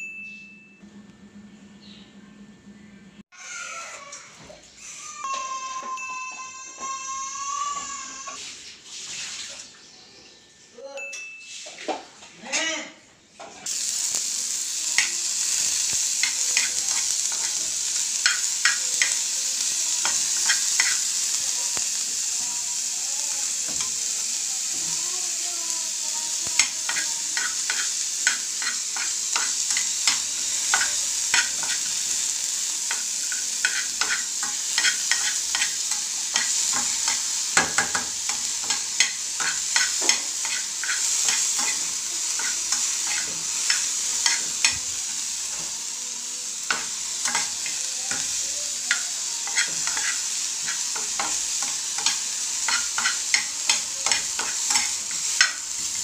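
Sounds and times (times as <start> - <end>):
onions sizzling in a frying pan: 5.0 - 9.4, 13.6 - 56.0
metal spoon scraping a pan: 15.0 - 21.3, 26.5 - 44.8, 46.7 - 56.0.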